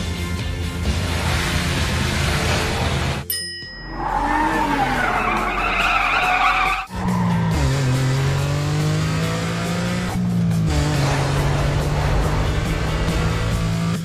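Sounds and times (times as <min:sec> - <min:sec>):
background music: 0:00.0 - 0:14.0
cartoon tyre screech: 0:03.9 - 0:07.8.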